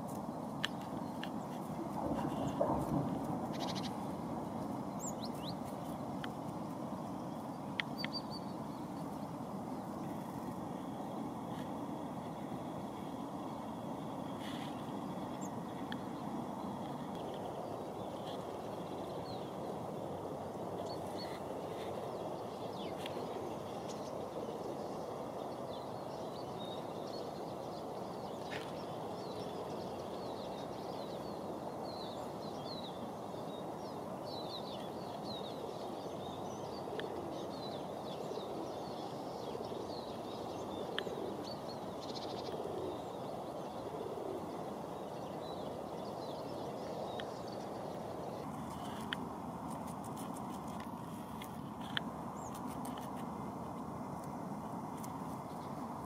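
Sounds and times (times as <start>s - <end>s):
small birds chirping: 3.5s - 10.6s, 20.7s - 56.0s.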